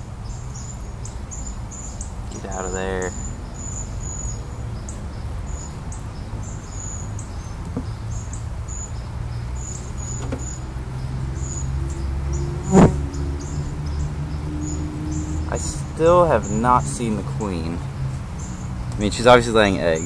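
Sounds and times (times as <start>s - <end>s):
honeybees buzzing: 12.4s - 13.3s.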